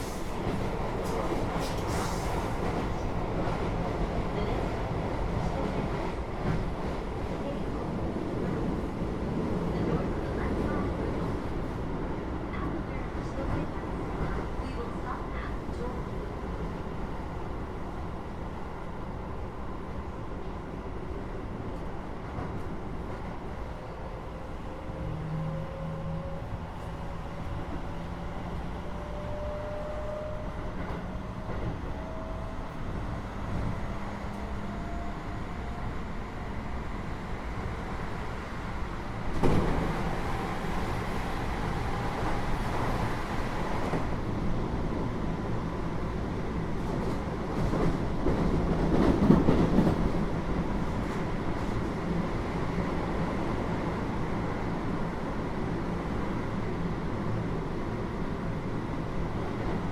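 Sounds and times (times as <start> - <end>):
electric train running rumble: 16.1 - 59.9.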